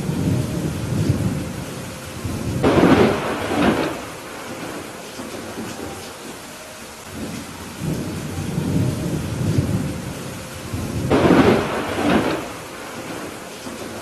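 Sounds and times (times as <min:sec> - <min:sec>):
sharp thunder clap: 0:00.0 - 0:05.8, 0:07.1 - 0:14.0
steady rain: 0:00.0 - 0:14.0
thunder rumbling: 0:00.0 - 0:14.0.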